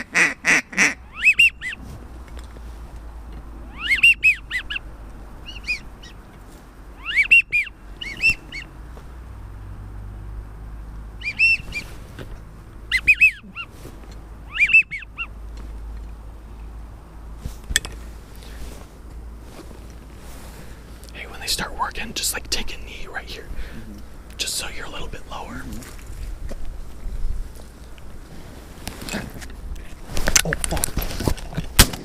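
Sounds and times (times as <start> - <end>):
waterfowl honking calls: 0.0 - 1.8, 3.7 - 4.8, 5.4 - 6.2, 7.0 - 8.7, 11.2 - 11.9, 12.9 - 13.7, 14.5 - 15.3
wind rumble: 0.0 - 31.8.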